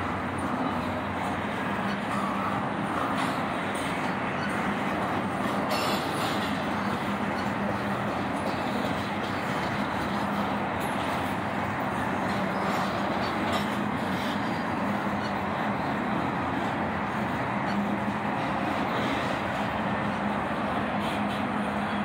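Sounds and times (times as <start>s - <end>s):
steel train wheels on rails: 0.0s - 22.0s.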